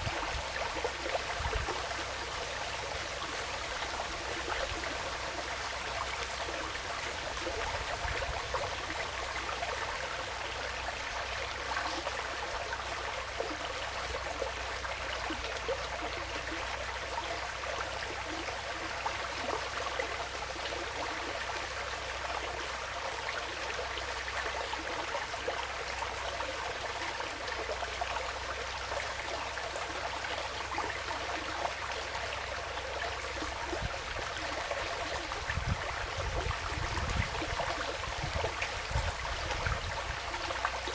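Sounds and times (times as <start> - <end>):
stream babbling: 0.0 - 40.9.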